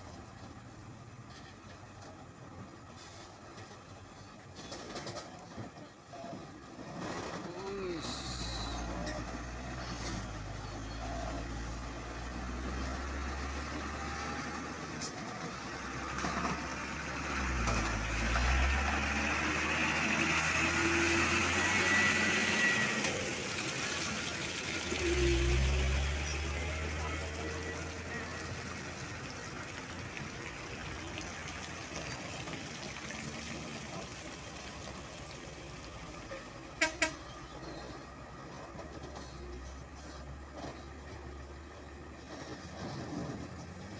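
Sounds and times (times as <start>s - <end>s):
diesel truck engine rumbling: 0.0s - 43.9s
vehicle and road noise: 0.0s - 43.9s
short horn toots: 36.8s - 37.4s.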